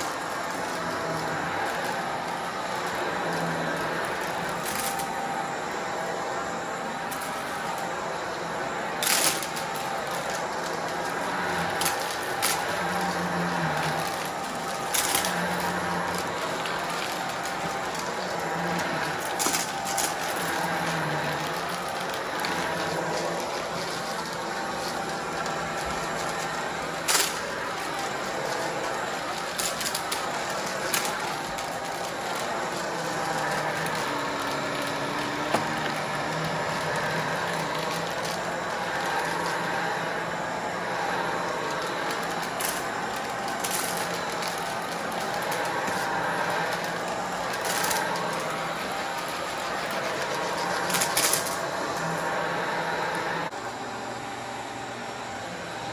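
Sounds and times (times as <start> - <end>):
vacuum cleaner running: 0.0 - 55.9.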